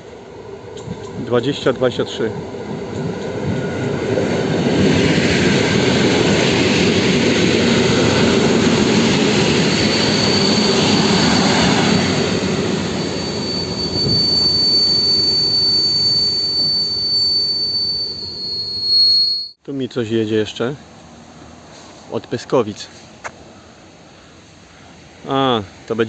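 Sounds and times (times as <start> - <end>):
train rumbling past: 0.0 - 19.1, 20.2 - 26.0
high steady whine: 8.0 - 19.6.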